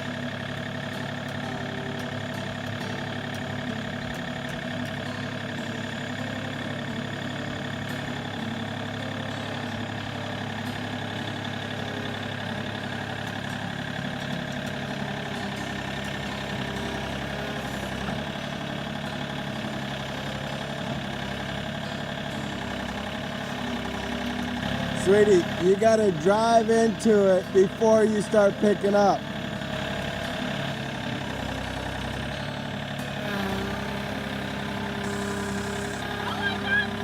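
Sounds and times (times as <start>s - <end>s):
tractor engine droning: 0.0s - 37.0s.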